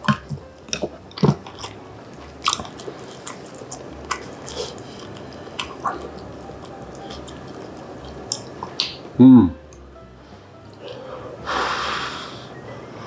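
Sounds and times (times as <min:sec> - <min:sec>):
close chewing: 0:00.0 - 0:09.1
wet mouth sounds: 0:00.0 - 0:09.5.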